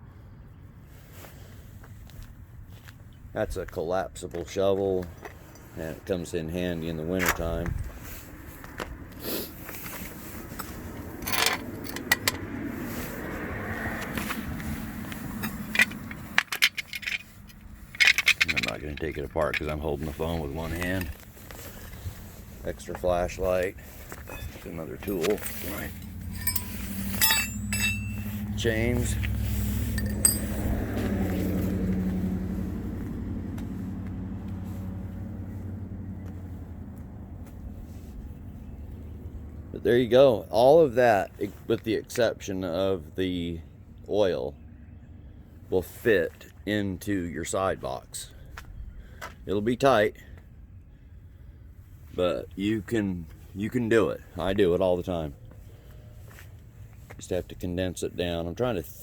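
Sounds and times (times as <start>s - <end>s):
vehicle engine humming: 5.0s - 40.2s
scraping: 14.2s - 31.8s
gear clicks and knocks: 15.1s - 22.1s, 24.1s - 29.0s.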